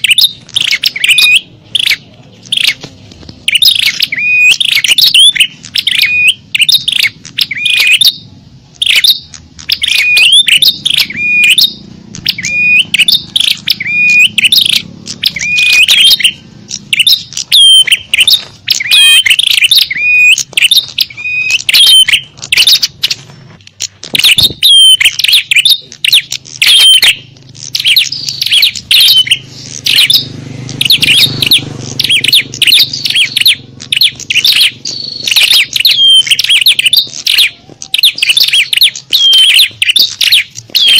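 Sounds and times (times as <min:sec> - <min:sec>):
songbirds chirping and whistling: 0:00.0 - 0:40.9.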